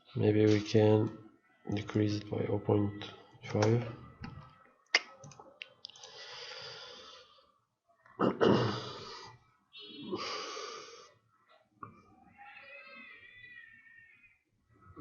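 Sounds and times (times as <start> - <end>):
person breathing close: 5.9 - 7.5, 10.1 - 11.2.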